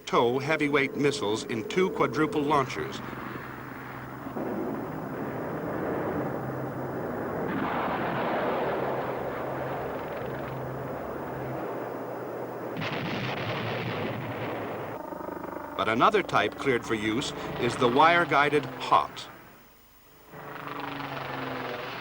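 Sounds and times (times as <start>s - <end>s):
helicopter running: 0.0s - 12.8s, 14.9s - 19.5s, 20.3s - 22.0s.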